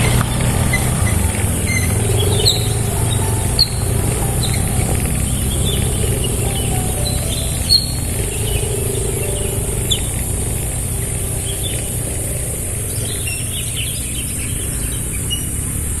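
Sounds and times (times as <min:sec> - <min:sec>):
steady low rumble: 0:00.0 - 0:15.3
constant high hiss: 0:00.0 - 0:16.0
small birds chirping: 0:00.0 - 0:16.0.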